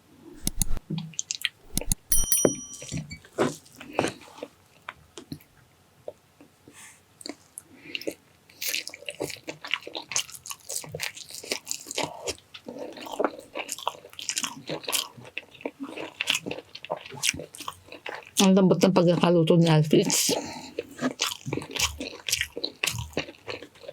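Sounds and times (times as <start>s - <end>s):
chewing with wet mouth clicks: 7.2s - 18.5s, 20.1s - 23.9s.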